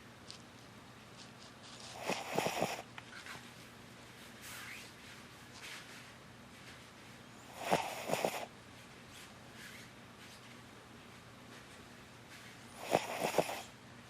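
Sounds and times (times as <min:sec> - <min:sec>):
dog snoring: 0:01.9 - 0:02.9, 0:07.4 - 0:08.5, 0:12.8 - 0:13.8.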